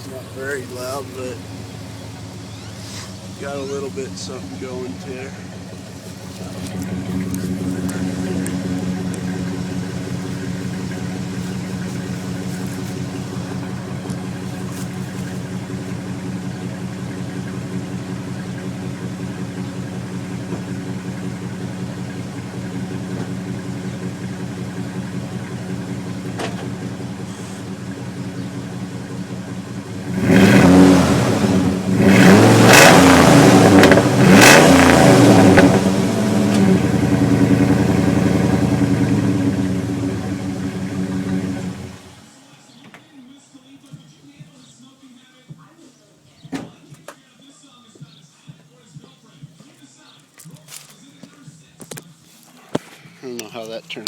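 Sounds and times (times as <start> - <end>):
truck engine idling and revving: 0.0 - 42.3.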